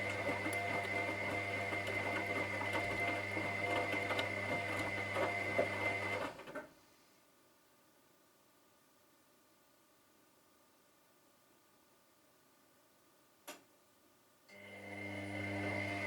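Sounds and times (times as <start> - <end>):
washing machine motor hum: 0.0 - 6.4, 14.5 - 16.0.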